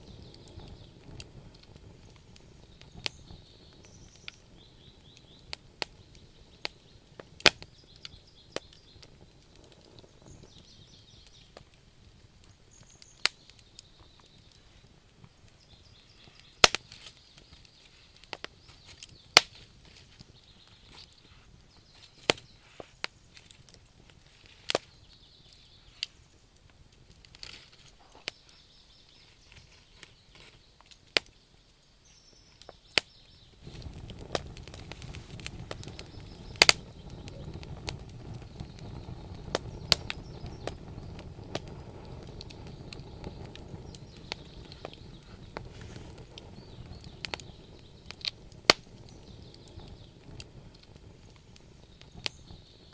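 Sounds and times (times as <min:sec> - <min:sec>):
campfire crackling and popping: 0:00.0 - 0:52.9
low hiss of burning logs: 0:00.0 - 0:52.9.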